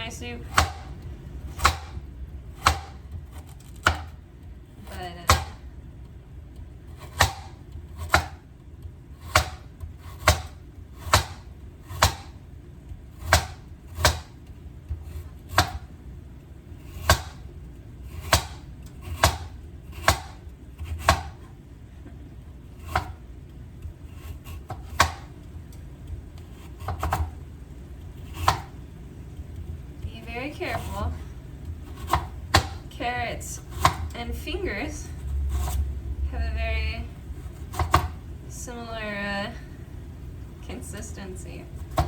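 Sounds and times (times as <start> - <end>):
knife chopping on cutting board: 0.5 - 0.9, 1.5 - 4.2, 5.2 - 5.6, 7.0 - 8.5, 9.2 - 12.4, 13.1 - 15.9, 16.8 - 17.5, 18.1 - 21.5, 22.8 - 23.2, 24.1 - 25.3, 26.4 - 27.4, 28.2 - 28.8, 31.9 - 32.8, 33.6 - 34.1, 37.5 - 38.2.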